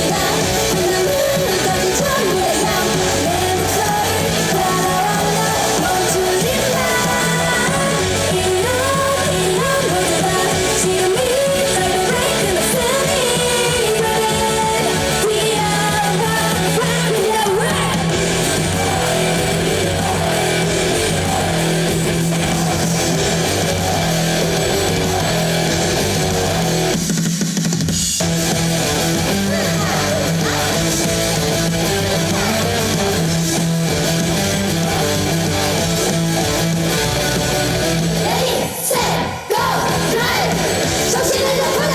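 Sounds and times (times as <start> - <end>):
person singing: 0.0 - 21.7, 29.3 - 31.1, 32.0 - 33.1, 38.2 - 41.9
electric guitar: 0.0 - 27.2, 28.2 - 41.9
drums: 0.0 - 41.9
live rock music: 0.0 - 41.9.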